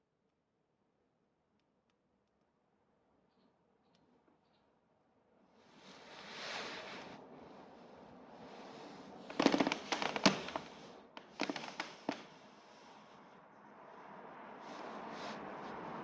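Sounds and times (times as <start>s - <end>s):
hiss: 5.7s - 7.2s.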